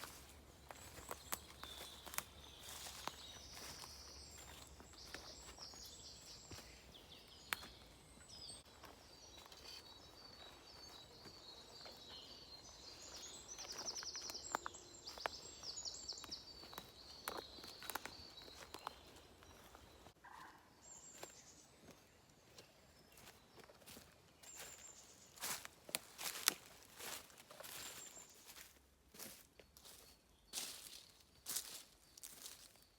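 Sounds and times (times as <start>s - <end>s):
footsteps on woodland floor: 0.0s - 20.2s, 21.1s - 32.7s
birds chirping and trilling: 0.0s - 32.9s
twigs snapping: 7.5s - 7.7s, 16.2s - 19.0s.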